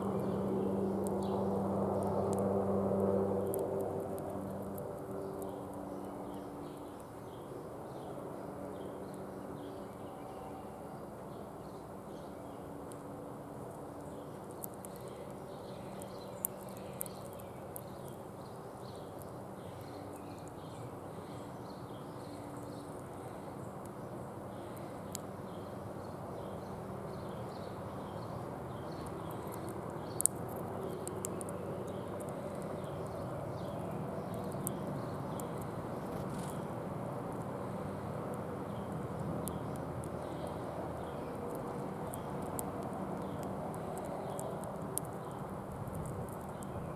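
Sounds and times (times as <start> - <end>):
sharp clicks: 28.9 - 33.2, 38.3 - 46.8.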